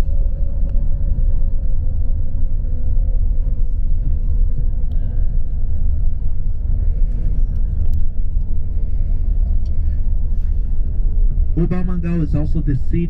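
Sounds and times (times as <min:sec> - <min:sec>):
coach engine and road rumble: 0:00.0 - 0:13.0
light ticks: 0:09.6 - 0:09.8.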